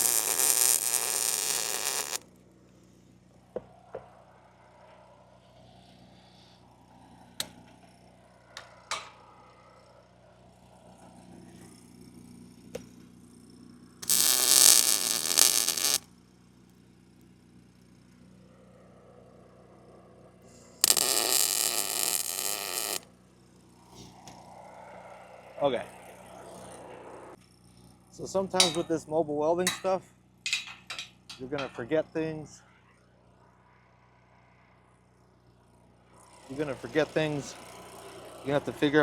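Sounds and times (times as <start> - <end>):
arc welding crackling buzz: 0.0 - 2.2, 14.0 - 16.1, 20.8 - 23.1
light metal clinks: 29.7 - 31.8.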